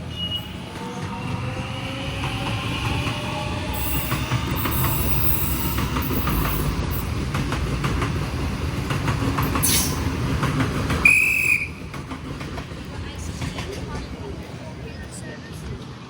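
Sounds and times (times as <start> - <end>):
high wheel squeal: 0.0 - 1.0, 3.8 - 6.8
train wheels rumbling on rails: 0.0 - 16.0.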